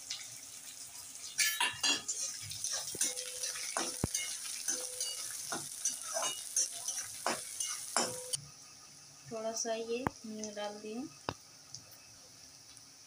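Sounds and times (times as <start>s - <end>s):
onions sizzling in hot oil: 0.0s - 8.4s
metal spatula scraping pan: 1.4s - 8.4s.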